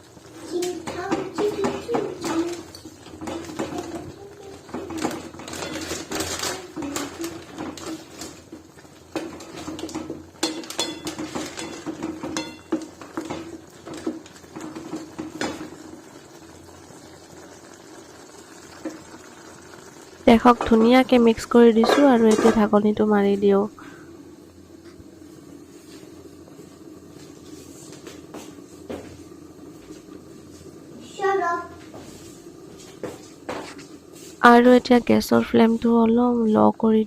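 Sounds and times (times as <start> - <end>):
broth simmering: 0.0 - 37.0
utensil clinking on metal pot: 4.6 - 7.9, 9.1 - 15.6.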